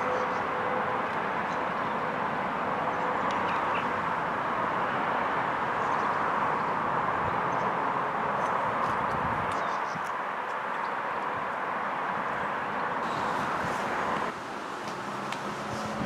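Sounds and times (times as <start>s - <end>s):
train wheels hissing on rail: 13.0s - 14.3s, 15.0s - 16.0s.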